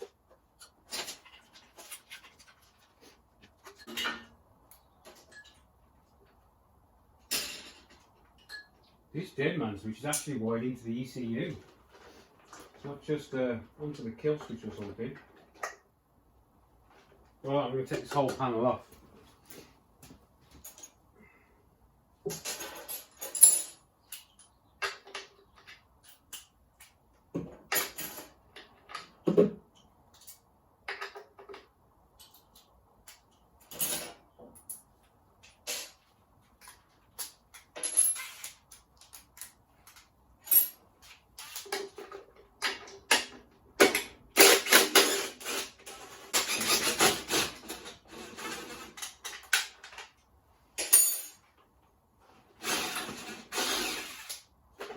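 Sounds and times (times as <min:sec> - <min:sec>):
tools and metal parts clinking: 0:00.3 - 0:06.4, 0:07.2 - 0:09.0, 0:20.5 - 0:21.1, 0:22.2 - 0:51.7, 0:52.6 - 0:54.9
metal rattling and scraping: 0:39.8 - 0:50.1, 0:52.4 - 0:54.9.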